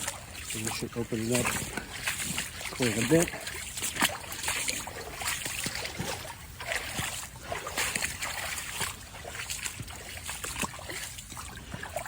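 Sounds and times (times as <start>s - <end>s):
creek water trickling: 0.0s - 12.0s
water splashing: 0.0s - 12.0s.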